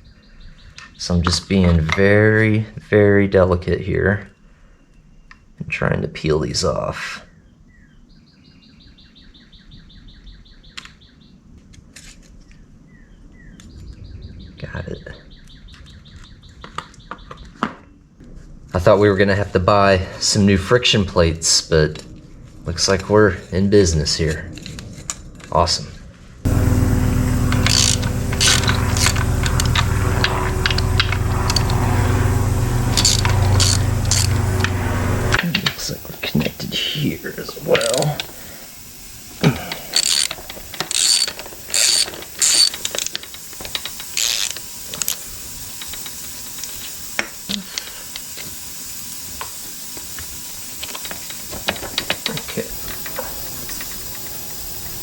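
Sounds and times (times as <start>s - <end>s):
songbird trill: 0.0s - 1.4s, 7.2s - 11.4s, 12.4s - 17.6s
low machine hum: 19.5s - 55.0s
sharp clicks: 26.5s - 55.0s.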